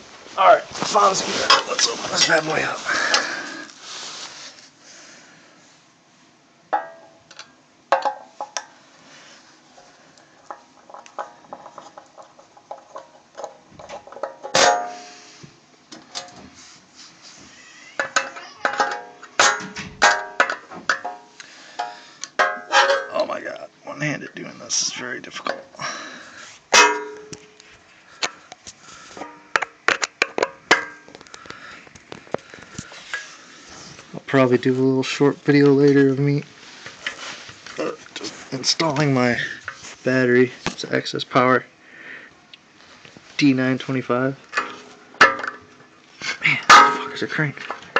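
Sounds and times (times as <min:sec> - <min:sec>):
tools tapping metal casing: 0:06.7 - 0:08.7, 0:10.4 - 0:15.0, 0:18.0 - 0:23.2, 0:46.7 - 0:47.9
ringing metal clank: 0:14.5 - 0:15.2, 0:26.8 - 0:27.4, 0:46.7 - 0:47.4.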